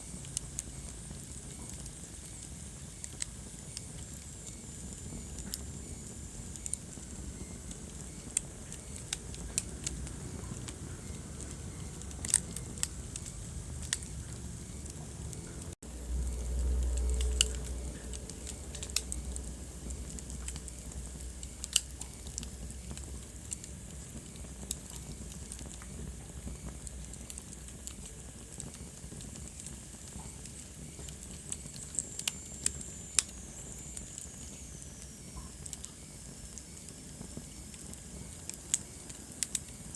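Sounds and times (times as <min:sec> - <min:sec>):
wood fire crackling and popping: 0:00.0 - 0:39.9
low rumble: 0:09.4 - 0:21.5.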